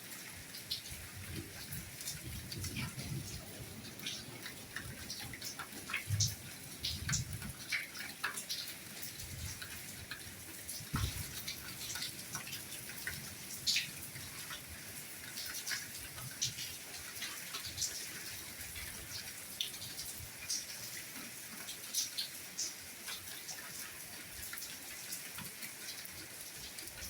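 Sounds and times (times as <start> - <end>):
soft rain falling: 0.0 - 27.0
low thuds: 11.0 - 11.4.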